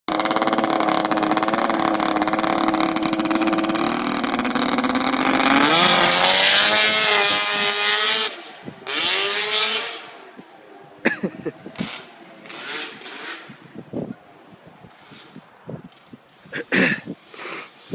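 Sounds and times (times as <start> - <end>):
snowmobile engine running: 0.1 - 10.2.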